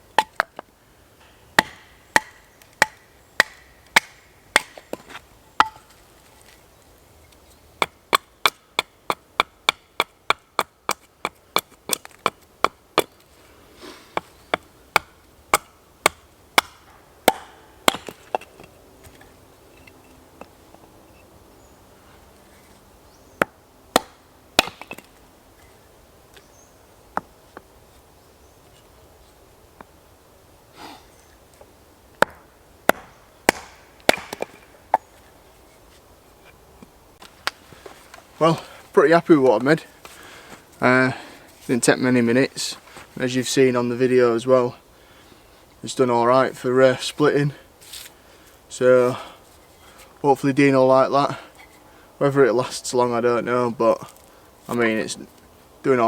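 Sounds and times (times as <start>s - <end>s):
axe chopping wood: 1.6s - 5.9s, 14.2s - 18.7s, 23.4s - 25.1s, 32.2s - 35.1s.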